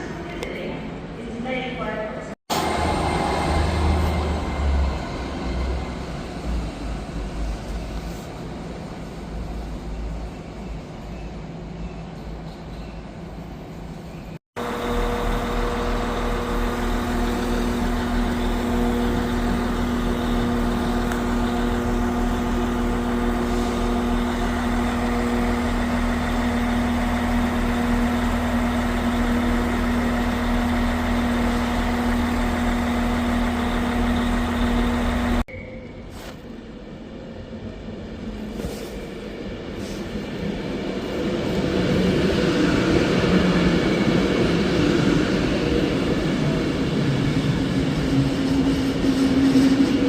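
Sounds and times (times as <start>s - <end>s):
train engine idling: 2.5s - 35.4s.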